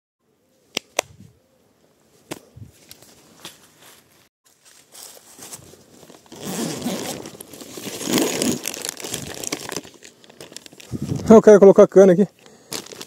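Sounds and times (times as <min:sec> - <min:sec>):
wrapping crinkling by hand: 0:04.5 - 0:11.5, 0:12.4 - 0:13.0.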